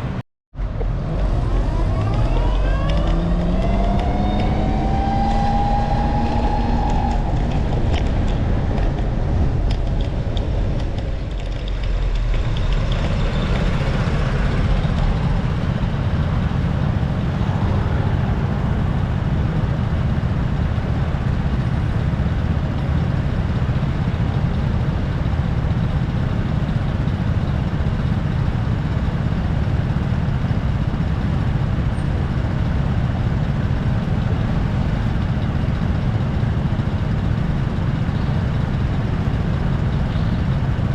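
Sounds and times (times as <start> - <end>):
passing vehicles: 0.0 - 40.9
wind buffeting microphone: 0.6 - 22.8.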